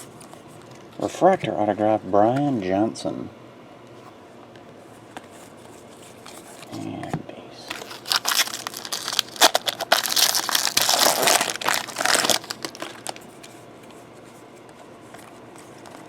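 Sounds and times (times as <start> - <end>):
wrapper crinkling and tearing: 7.7 - 13.4.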